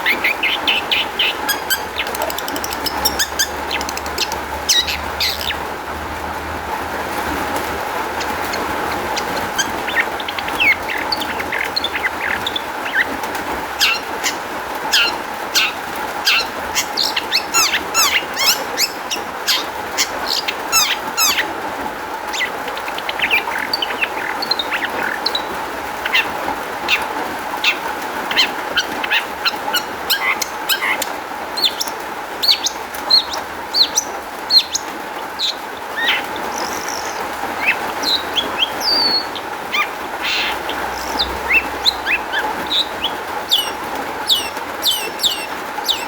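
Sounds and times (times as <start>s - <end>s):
shrike singing: 0.0s - 5.7s, 35.5s - 46.0s.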